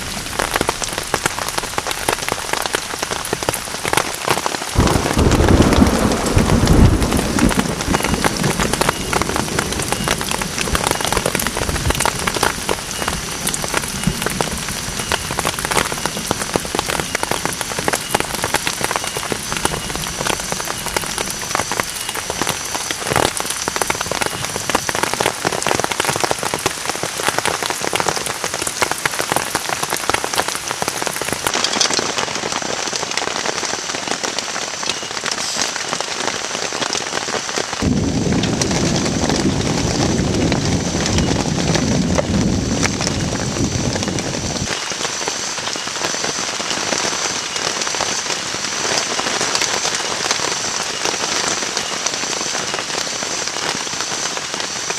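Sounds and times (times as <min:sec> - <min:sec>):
heavy rain on shelter: 0:00.0 - 0:54.9
low rumble: 0:37.8 - 0:44.7.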